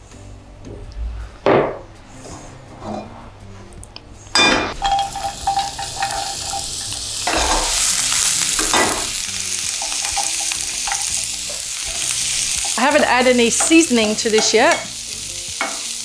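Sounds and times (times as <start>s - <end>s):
vegetables sizzling in a frying pan: 4.8s - 16.0s.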